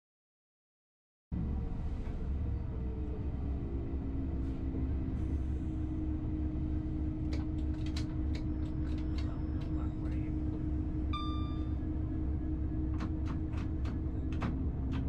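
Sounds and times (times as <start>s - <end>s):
train rumbling on board: 1.4s - 15.0s.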